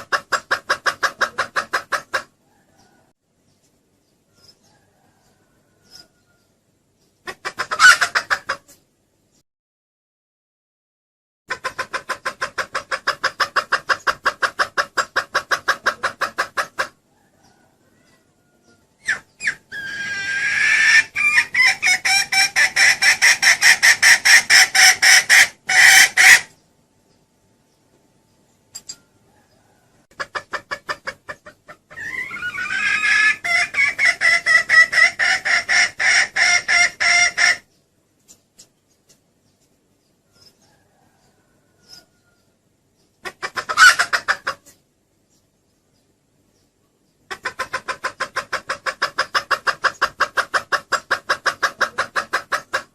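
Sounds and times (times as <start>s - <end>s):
hen clucking rapidly: 0.0s - 3.8s, 7.1s - 8.9s, 11.5s - 26.6s, 29.4s - 37.7s, 43.0s - 44.9s, 47.1s - 52.9s.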